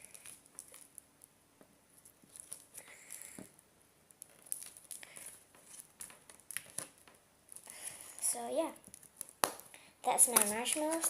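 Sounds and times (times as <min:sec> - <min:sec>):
slime sticky clicks and crackles: 0:04.1 - 0:07.8, 0:08.8 - 0:09.7.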